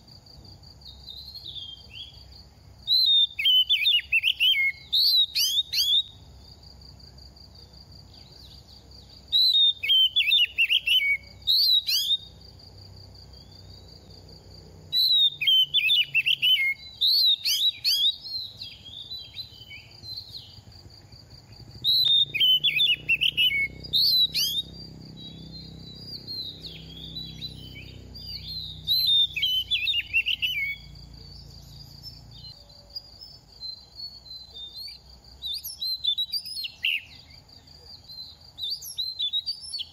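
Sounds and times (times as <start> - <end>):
bird singing whistled phrases: 1.0 - 6.2, 9.2 - 12.4, 14.9 - 20.6, 21.8 - 37.4, 38.0 - 39.9.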